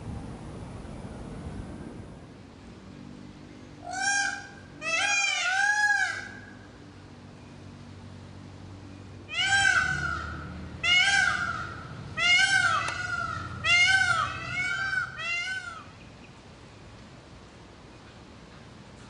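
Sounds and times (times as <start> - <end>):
peacock wailing calls: 3.8 - 6.7, 9.3 - 16.0.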